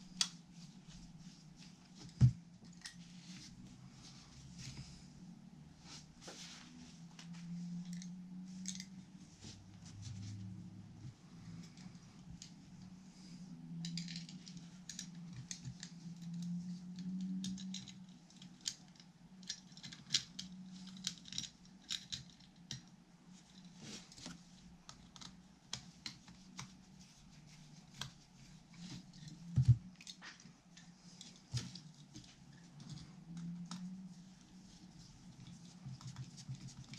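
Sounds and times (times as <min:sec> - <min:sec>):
small clicks taps and scrapes: 0:13.8 - 0:36.9.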